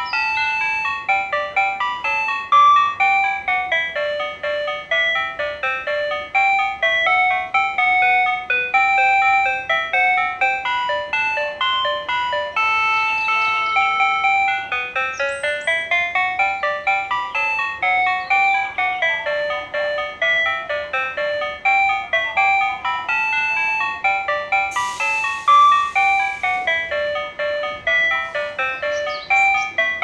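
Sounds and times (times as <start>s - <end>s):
looping electronic melody: 0.0s - 30.0s.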